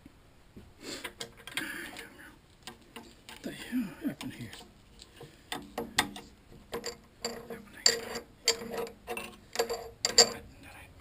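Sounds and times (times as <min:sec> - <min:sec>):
metal parts clinking: 0:03.0 - 0:10.5.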